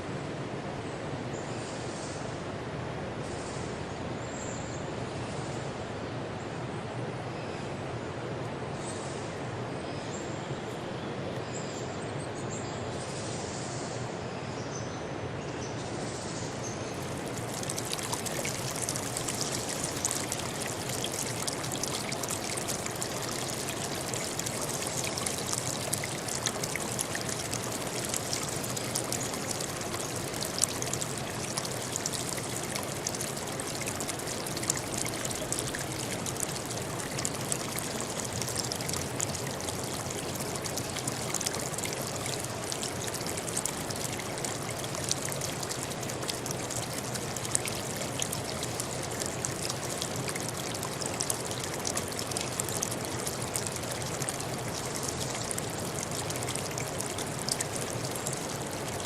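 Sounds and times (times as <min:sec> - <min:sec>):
stream trickling and splashing: 0:15.8 - 0:59.0.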